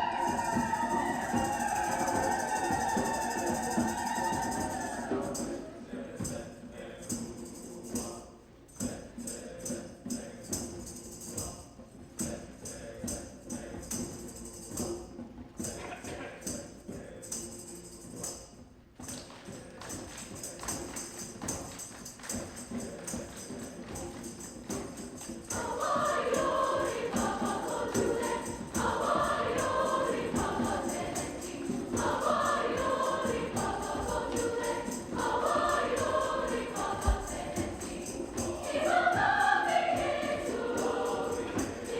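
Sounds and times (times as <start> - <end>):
choir singing loudly: 0.0 - 10.7, 12.2 - 14.2, 25.5 - 41.9.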